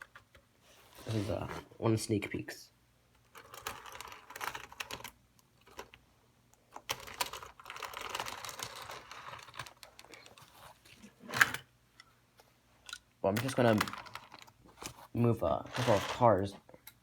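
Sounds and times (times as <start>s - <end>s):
plastic pieces clicking and scraping: 3.3s - 6.0s, 6.7s - 10.5s, 12.9s - 15.0s.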